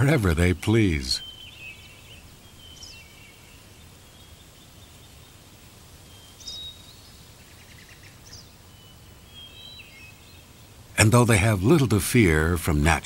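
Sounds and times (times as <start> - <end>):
birds whistling and chirping: 0.0 - 5.4, 6.0 - 10.7
faint forest ambience: 0.0 - 13.0.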